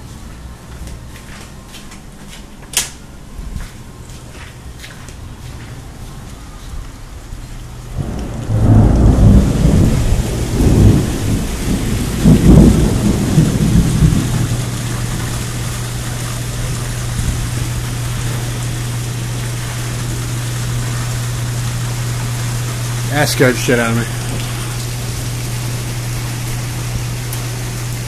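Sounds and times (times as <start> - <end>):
steady rain: 6.7 - 28.0
thunder rumbling: 7.9 - 28.0.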